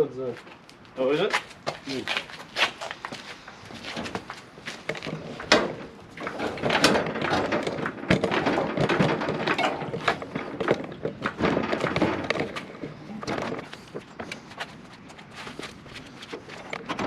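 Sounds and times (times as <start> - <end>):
metal knocks and clunks: 4.0 - 14.5, 16.4 - 17.0.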